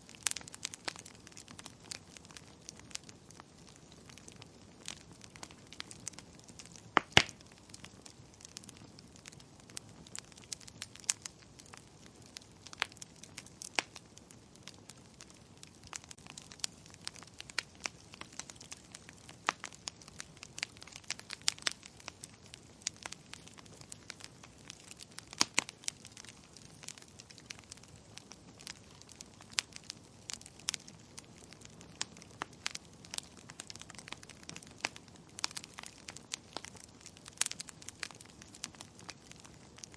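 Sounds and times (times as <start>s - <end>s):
fire pops and snaps: 0.0s - 39.9s
wood fire crackling: 0.0s - 39.9s.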